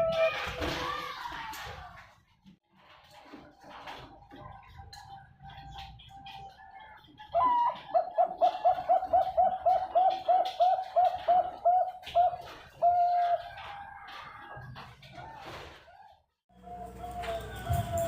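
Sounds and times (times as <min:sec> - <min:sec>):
dove cooing: 0:05.6 - 0:14.1.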